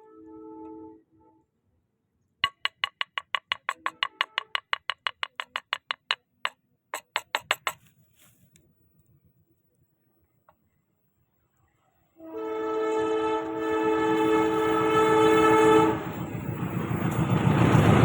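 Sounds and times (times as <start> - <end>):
sharp ringing knocks: 2.4 - 6.2.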